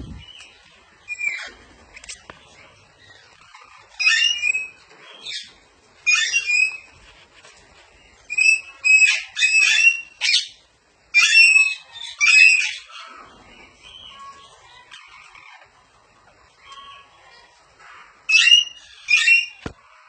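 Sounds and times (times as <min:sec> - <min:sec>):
parrot squawking: 0:03.4 - 0:05.5, 0:06.1 - 0:06.9, 0:08.3 - 0:13.1, 0:18.3 - 0:19.6.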